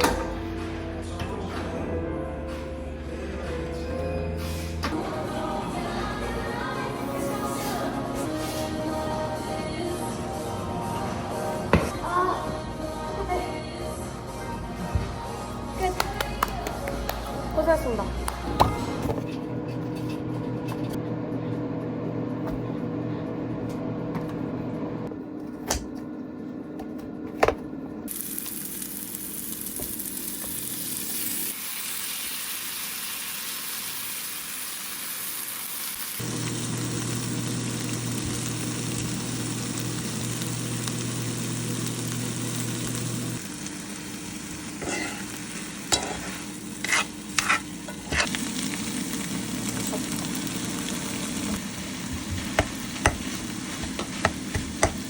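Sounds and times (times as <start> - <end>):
food sizzling in a frying pan: 28.1 - 55.0
utensils knocking against pan: 52.3 - 55.0.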